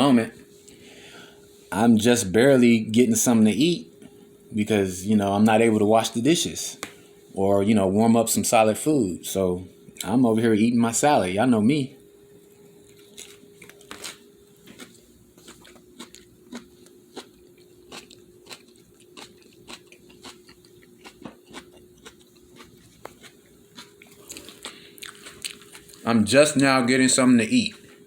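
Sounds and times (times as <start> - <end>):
person chewing crunchy salad: 12.8 - 26.2.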